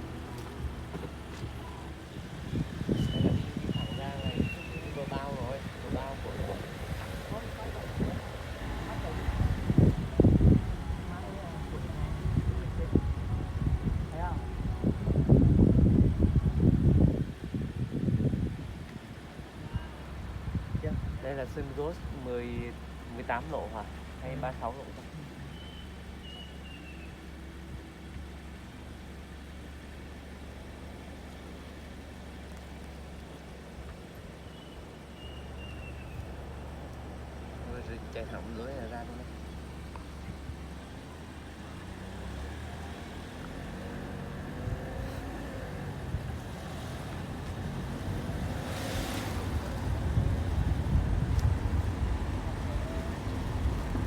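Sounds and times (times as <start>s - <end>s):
wind on microphone: 0.0s - 22.1s, 43.6s - 54.0s
car engine and road noise: 0.0s - 54.0s.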